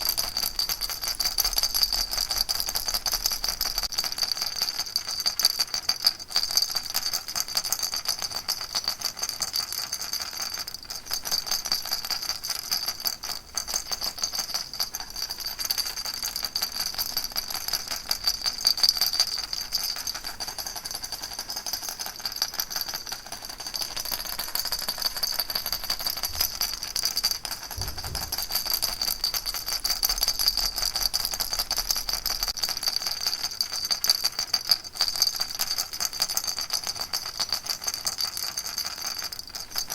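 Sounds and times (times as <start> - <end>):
baby rattle shaken: 13.6 - 36.6.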